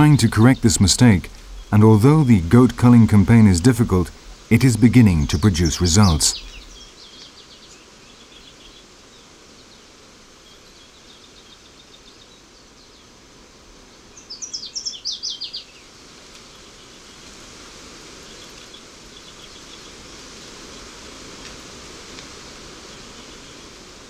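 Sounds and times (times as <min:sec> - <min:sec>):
high chirps: 0:00.0 - 0:06.9
bird singing falling notes: 0:00.0 - 0:07.8.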